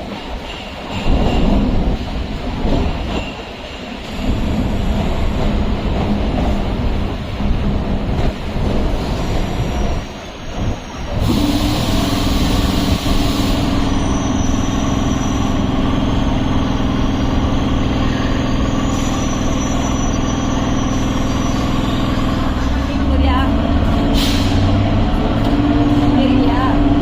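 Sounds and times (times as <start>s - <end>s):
train running noise: 0.0s - 27.0s
air hissing: 11.2s - 15.4s.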